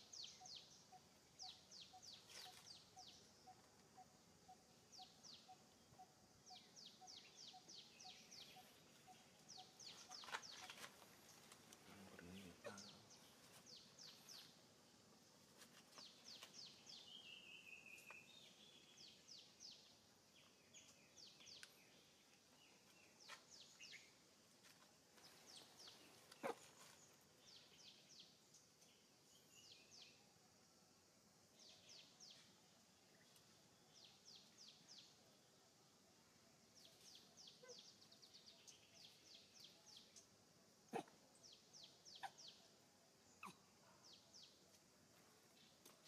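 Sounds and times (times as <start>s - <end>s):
bird chirping: 0.0s - 14.6s, 15.9s - 24.2s, 25.2s - 30.4s, 36.5s - 44.8s.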